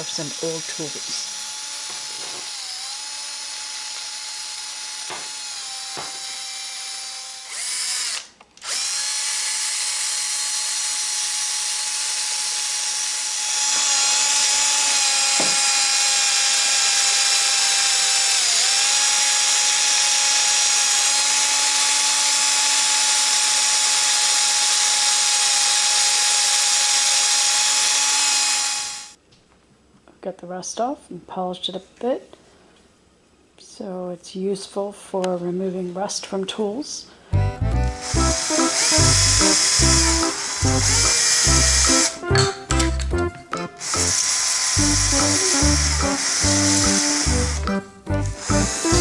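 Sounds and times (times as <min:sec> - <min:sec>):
sanding disc grinding rust: 0:00.0 - 0:02.8
mini drill whining: 0:00.0 - 0:29.2, 0:37.4 - 0:49.0.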